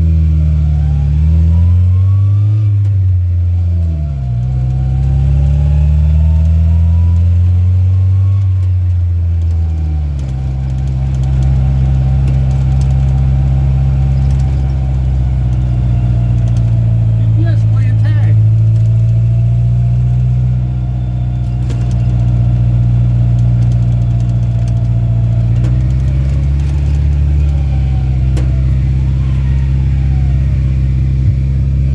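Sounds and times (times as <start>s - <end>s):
truck engine shifting gears: 0.0s - 31.9s.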